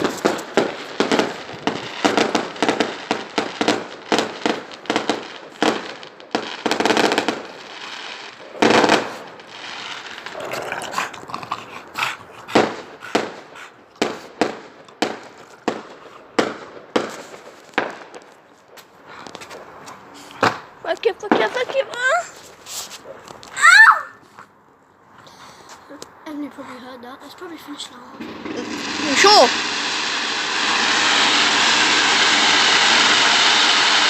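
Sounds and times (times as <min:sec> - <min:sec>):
loud fireworks blast: 0:00.0 - 0:10.8, 0:12.4 - 0:22.3, 0:27.7 - 0:34.0
fireworks bangs and pops: 0:00.0 - 0:23.8, 0:27.4 - 0:34.0
fireworks crackling: 0:00.0 - 0:24.6, 0:25.6 - 0:34.0.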